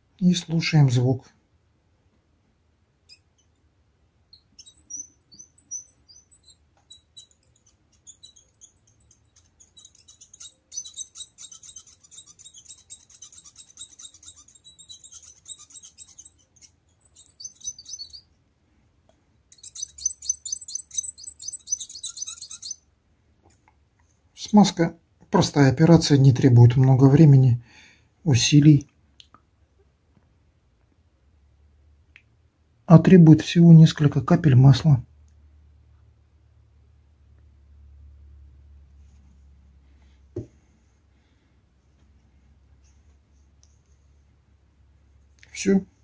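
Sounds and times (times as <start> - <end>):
metal nippers joint squeaking: 4.3 - 18.3, 19.5 - 22.8.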